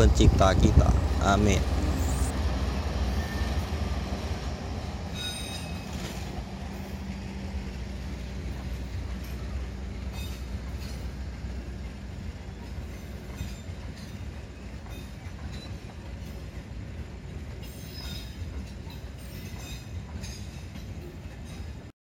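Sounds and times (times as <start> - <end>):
train rumbling past: 0.0 - 21.9
train wheel squeal: 1.2 - 2.4, 3.1 - 3.8, 5.1 - 7.2, 8.5 - 11.2, 12.5 - 16.6, 17.6 - 21.9
wheels clicking over rail joints: 17.3 - 21.9.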